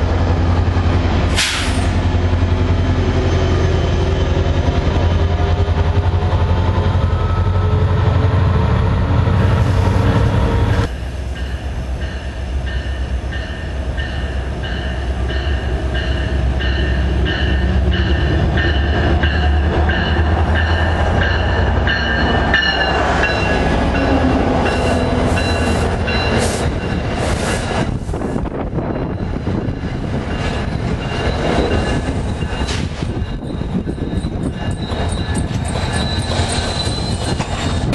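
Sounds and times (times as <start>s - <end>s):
train cars rolling: 0.0s - 37.9s.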